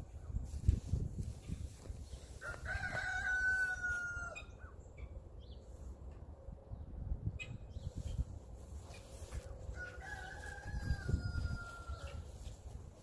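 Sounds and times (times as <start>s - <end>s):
rooster crowing: 2.4s - 4.6s, 9.7s - 12.4s.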